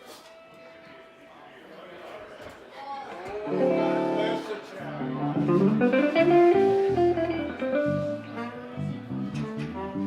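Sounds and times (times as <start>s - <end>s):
bluesy electric guitar phrase: 3.5s - 10.0s
bass notes: 5.0s - 10.0s.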